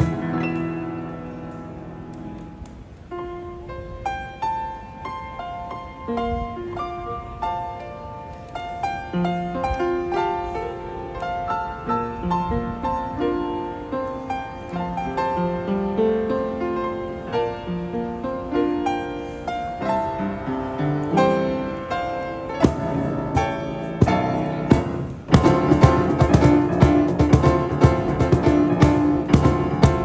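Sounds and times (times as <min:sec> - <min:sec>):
low cajon thumps: 0:00.0 - 0:02.9, 0:22.6 - 0:30.0
piano playing: 0:00.0 - 0:30.0.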